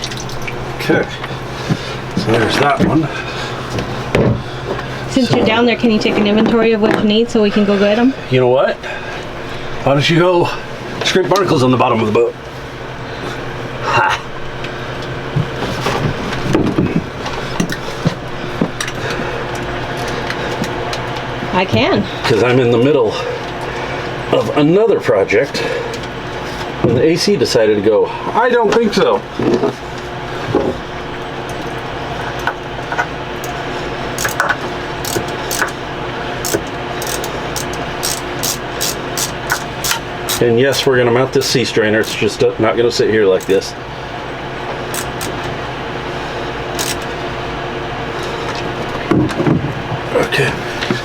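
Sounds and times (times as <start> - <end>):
steady low hum: 0.0 - 51.0
hand tools and metal fittings clinking: 34.2 - 35.8, 36.4 - 40.4, 44.9 - 45.5, 46.8 - 47.1.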